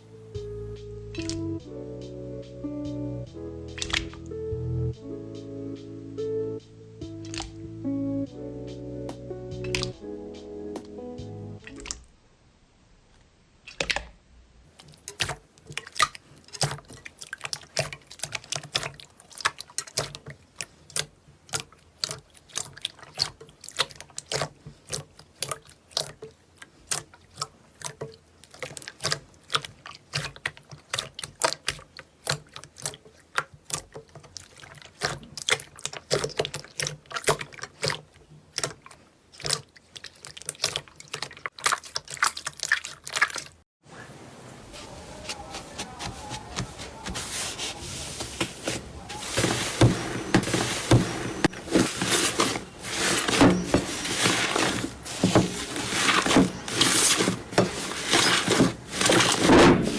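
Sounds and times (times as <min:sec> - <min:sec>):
slime squelching by hand: 0:03.8 - 0:04.2, 0:07.2 - 0:07.6, 0:14.7 - 0:43.6, 0:44.2 - 0:59.9.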